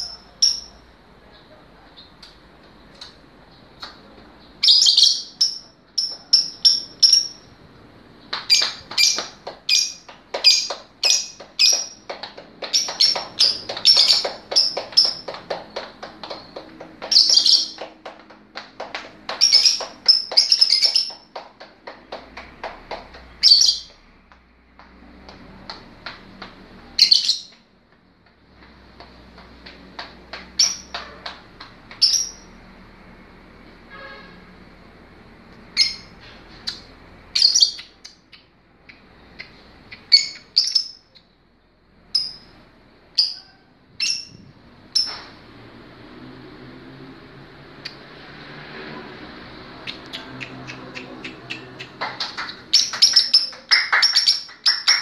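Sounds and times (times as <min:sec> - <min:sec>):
lovebird chattering: 0:04.6 - 0:07.5, 0:08.5 - 0:17.8, 0:19.3 - 0:21.3, 0:23.4 - 0:23.9.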